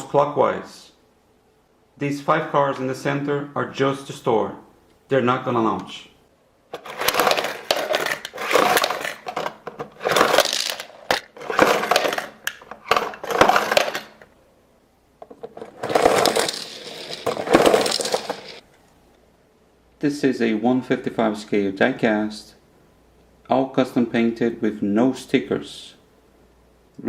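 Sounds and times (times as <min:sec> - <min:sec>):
toy cars clattering: 0:06.7 - 0:14.3, 0:15.2 - 0:18.6
plastic toy launcher clicking: 0:06.8 - 0:14.2.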